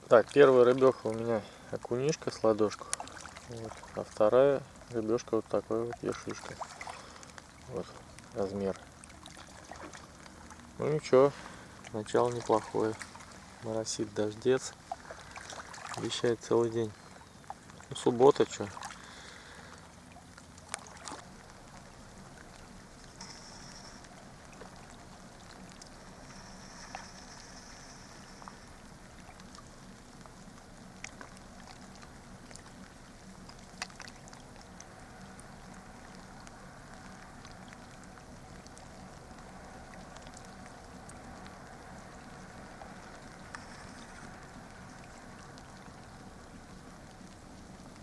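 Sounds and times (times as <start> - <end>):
light rain hissing: 9.8 - 17.7, 18.4 - 20.0, 21.2 - 33.8, 34.4 - 48.0.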